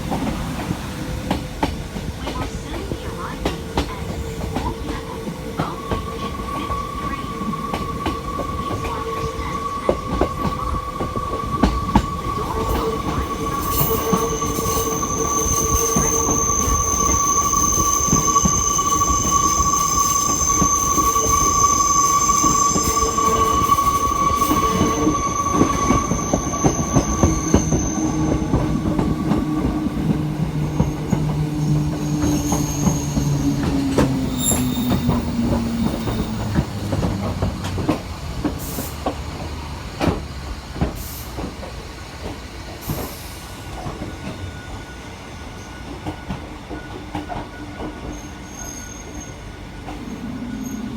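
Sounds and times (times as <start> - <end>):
wheels clicking on rail: 0.0 - 44.4
train wheels squealing: 2.2 - 50.9.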